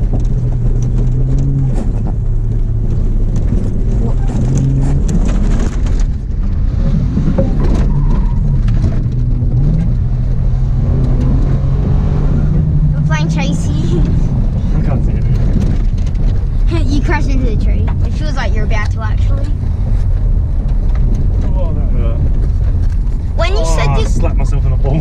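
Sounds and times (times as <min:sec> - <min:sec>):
car engine running hard: 0:00.0 - 0:25.0
knocks and rattles: 0:13.7 - 0:23.4.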